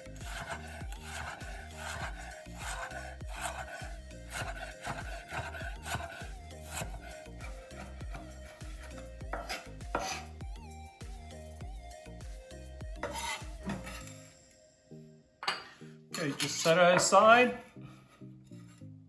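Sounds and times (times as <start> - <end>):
knife slicing on wooden cutting board: 0.0 - 10.3, 13.0 - 14.1
background music: 0.0 - 19.0.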